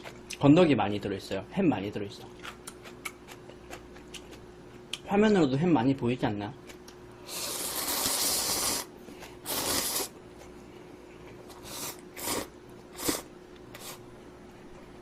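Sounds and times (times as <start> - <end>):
person slurping noodles: 7.2 - 10.2, 11.6 - 14.0.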